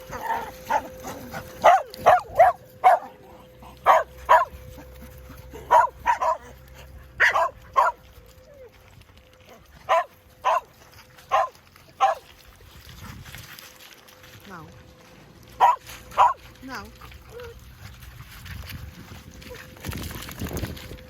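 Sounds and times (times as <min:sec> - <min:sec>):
dogs barking: 0:00.0 - 0:08.0, 0:09.9 - 0:12.3, 0:15.6 - 0:16.5.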